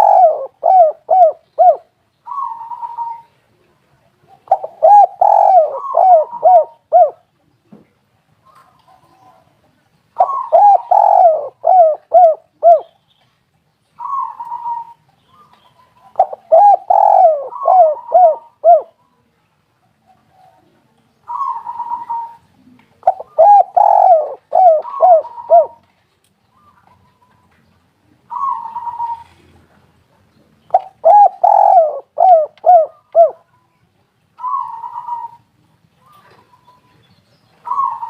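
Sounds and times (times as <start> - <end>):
dove cooing: 0.0 - 3.4, 4.3 - 7.3, 10.2 - 12.9, 14.0 - 19.0, 20.0 - 25.9, 28.2 - 29.8, 30.7 - 33.6, 34.4 - 36.8, 37.6 - 38.0.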